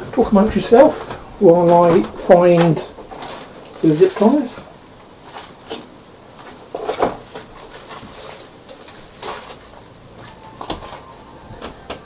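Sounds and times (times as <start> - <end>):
rummaging clatter of parts: 0.0 - 12.0
distant ice cream van chime: 10.1 - 12.0.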